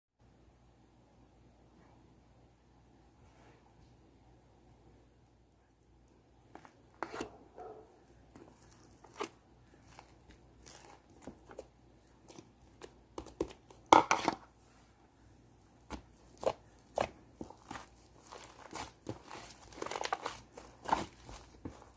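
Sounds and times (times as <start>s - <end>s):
slime crackling and popping: 16.0s - 21.5s.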